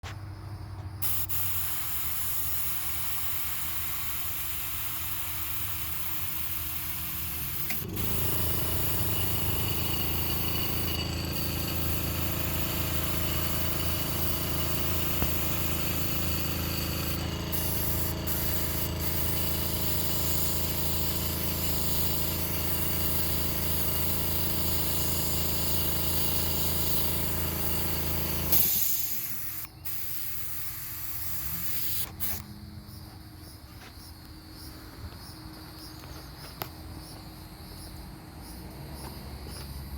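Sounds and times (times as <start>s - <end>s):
sprayed air hissing: 1.0s - 32.4s
compressor motor running: 1.0s - 32.6s.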